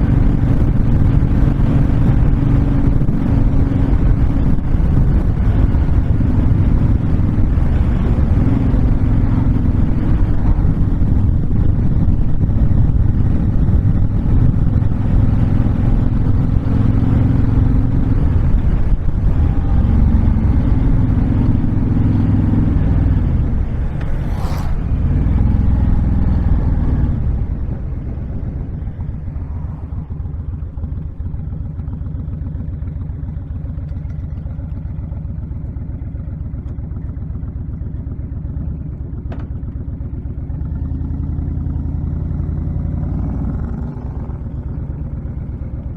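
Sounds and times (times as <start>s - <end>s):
wind noise: 0.0s - 31.7s
motorcycle engine running: 0.0s - 45.9s.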